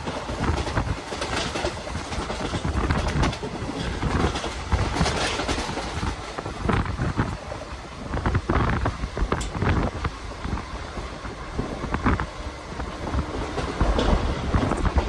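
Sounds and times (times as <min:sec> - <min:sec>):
train wheels rumbling on rails: 0:00.0 - 0:15.0
wind buffeting microphone: 0:00.0 - 0:15.0.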